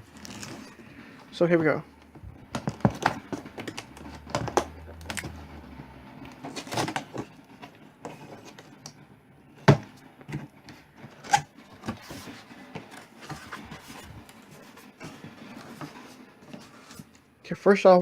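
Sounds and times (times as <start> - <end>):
cardboard box rustling and scraping: 0.0 - 1.0, 6.3 - 8.8, 10.4 - 17.2.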